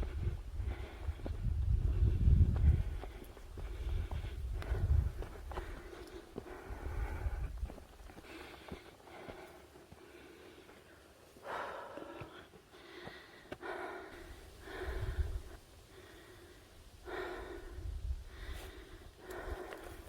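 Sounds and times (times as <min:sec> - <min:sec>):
person breathing hard: 0:00.0 - 0:20.0.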